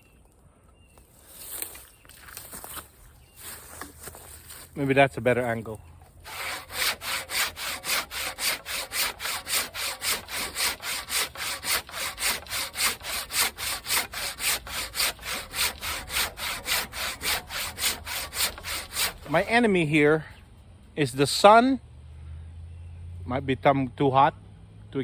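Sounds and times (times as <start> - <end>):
hand saw cutting wood: 6.2 - 20.3.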